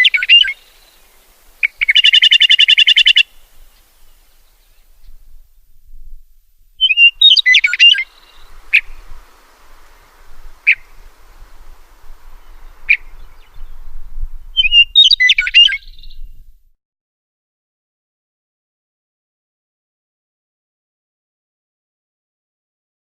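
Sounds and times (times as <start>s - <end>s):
songbird singing: 0.0s - 16.6s.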